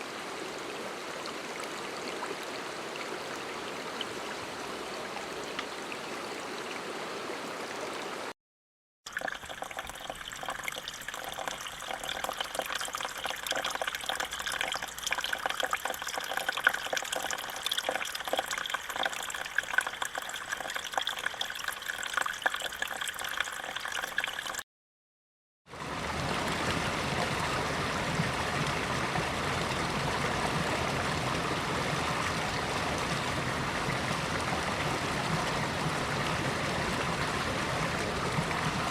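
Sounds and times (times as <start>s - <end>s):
steady water sound: 0.0s - 8.4s, 9.1s - 24.6s, 25.7s - 38.9s
trickling bubbling water: 9.1s - 24.6s
flowing stream rushing: 25.8s - 38.9s.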